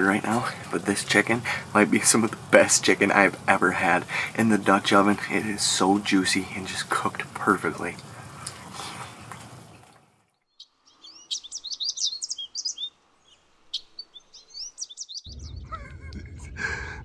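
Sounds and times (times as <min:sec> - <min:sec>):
small birds chirping: 0:07.6 - 0:15.9.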